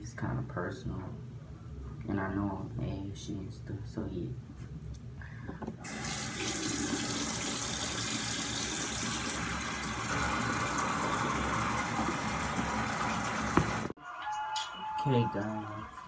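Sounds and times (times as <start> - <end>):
tap water running into sink: 5.8 - 14.0.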